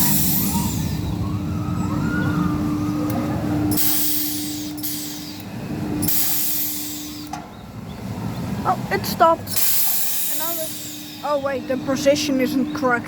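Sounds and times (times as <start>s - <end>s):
low rumble: 0.0s - 6.1s
ride motor humming: 0.0s - 13.0s
short bursts of hissing: 3.7s - 5.3s, 6.0s - 7.2s, 9.5s - 11.4s.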